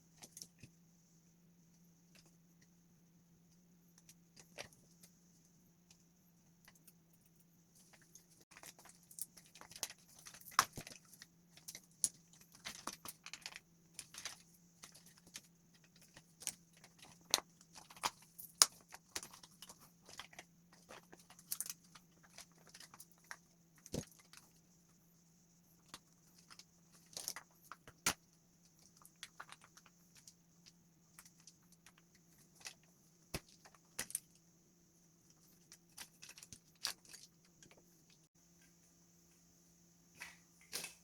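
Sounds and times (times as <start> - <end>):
faint steady hum: 0.0 - 41.0
plastic parts clicking and tapping: 7.9 - 24.5.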